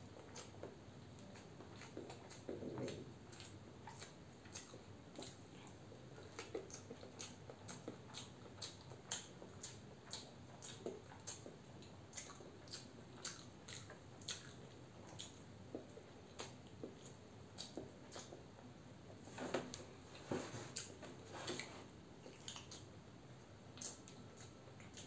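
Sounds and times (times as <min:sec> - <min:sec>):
egg being chewed: 0:00.1 - 0:19.2, 0:20.7 - 0:25.0
wet mouth clicks: 0:21.6 - 0:22.9, 0:23.8 - 0:25.0.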